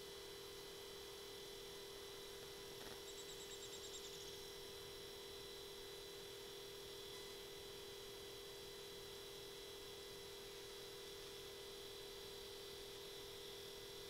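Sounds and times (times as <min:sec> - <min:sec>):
electronic hum: 0:00.0 - 0:14.0.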